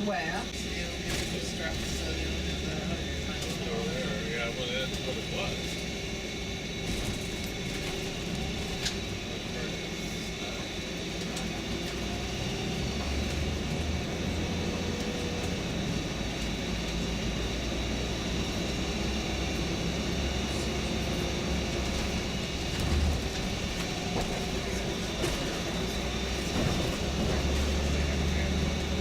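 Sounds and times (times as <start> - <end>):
coach engine and road rumble: 0.0 - 29.0.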